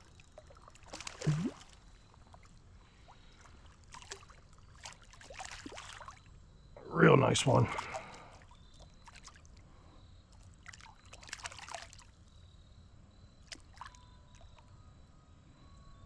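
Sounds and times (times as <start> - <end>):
small water splashes: 0.0 - 6.3, 7.5 - 9.7, 10.3 - 12.4, 13.4 - 14.6
creek water trickling: 0.0 - 12.4, 13.4 - 14.8.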